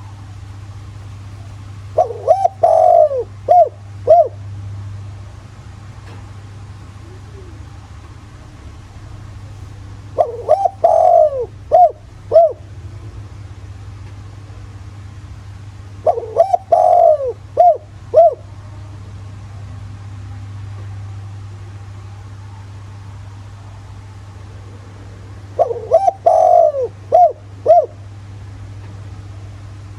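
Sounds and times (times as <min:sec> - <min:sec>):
dove cooing: 0:00.0 - 0:04.5, 0:06.0 - 0:12.9, 0:16.0 - 0:18.6, 0:24.5 - 0:28.1
steady low hum: 0:00.0 - 0:29.9.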